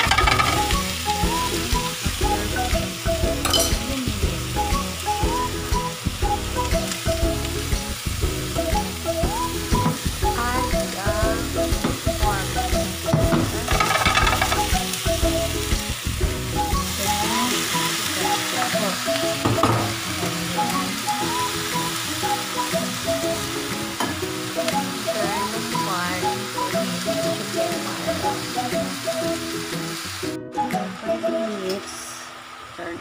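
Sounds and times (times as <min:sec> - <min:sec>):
meat sizzling with onions: 0:00.0 - 0:33.0
vegetables sizzling in a frying pan: 0:00.0 - 0:33.0
spatula stirring in a pan: 0:13.1 - 0:14.8.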